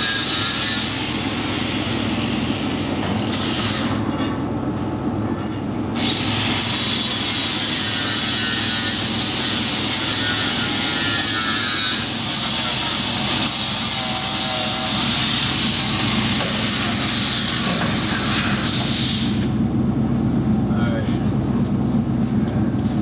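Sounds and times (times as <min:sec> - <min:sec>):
power tool whining on metal: 0:00.0 - 0:04.0, 0:06.0 - 0:19.6.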